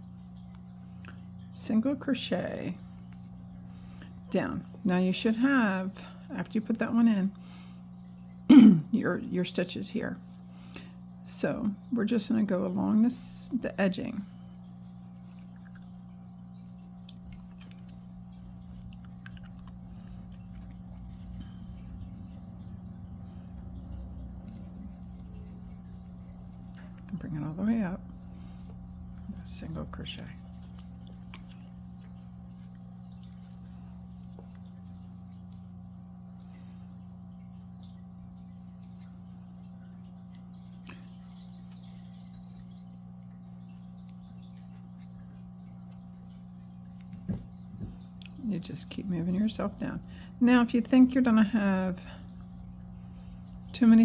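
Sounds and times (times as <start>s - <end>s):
steady low hum: 0.0s - 54.0s
crochet hook and yarn rustling: 16.8s - 35.8s.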